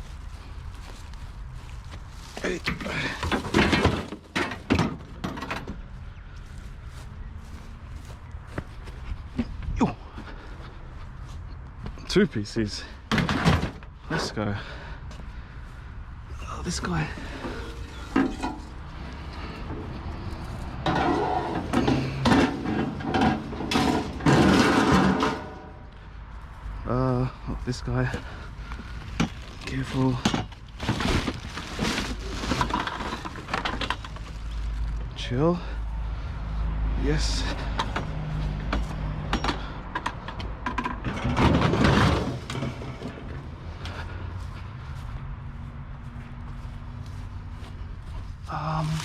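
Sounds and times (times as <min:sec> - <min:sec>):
junk items clattering and scraping: 0:00.0 - 0:06.2, 0:12.7 - 0:15.3, 0:16.5 - 0:26.0, 0:27.2 - 0:35.8, 0:37.1 - 0:44.7
loud clattering noise: 0:20.8 - 0:25.7, 0:39.5 - 0:43.4.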